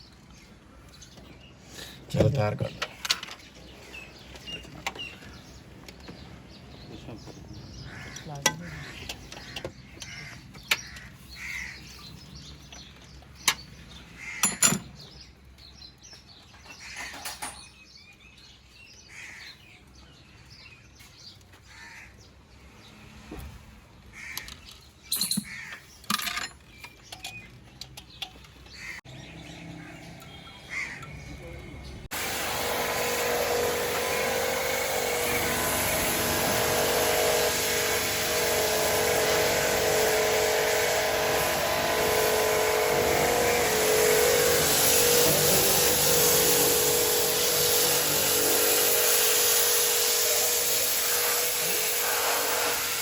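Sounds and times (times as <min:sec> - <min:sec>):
birds chirping: 0:00.0 - 0:53.0
crows calling: 0:07.7 - 0:12.3, 0:14.0 - 0:15.1, 0:16.6 - 0:17.4, 0:19.0 - 0:19.8, 0:21.5 - 0:22.4, 0:24.1 - 0:24.8, 0:25.4 - 0:26.0, 0:28.7 - 0:31.4
loud humming machine: 0:29.1 - 0:53.0.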